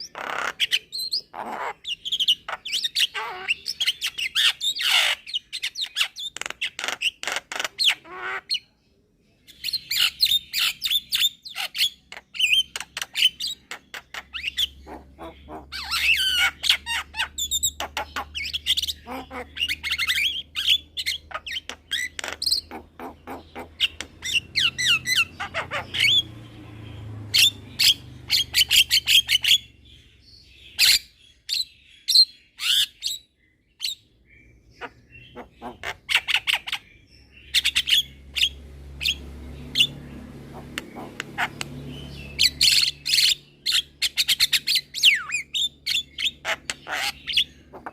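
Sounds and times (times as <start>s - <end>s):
myna singing chirps and trills: 9.6s - 33.2s, 33.8s - 47.9s.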